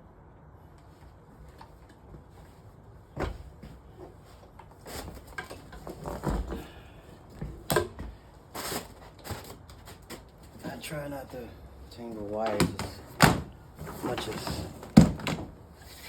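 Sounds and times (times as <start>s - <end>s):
machine and cable clattering: 12.2s - 15.6s.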